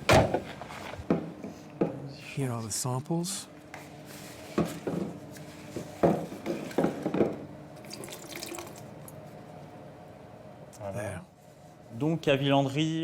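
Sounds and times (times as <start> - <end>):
water splashing in a sink: 7.8 - 9.1.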